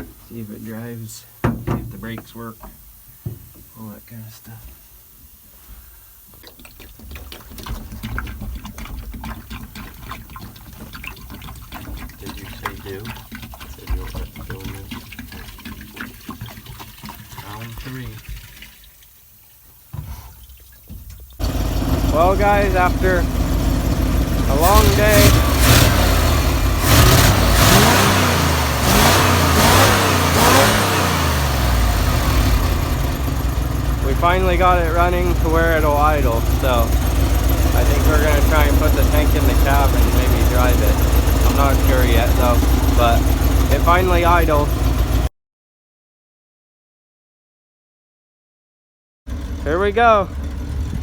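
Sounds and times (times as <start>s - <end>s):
truck engine running roughly: 21.4s - 45.3s, 49.3s - 51.0s.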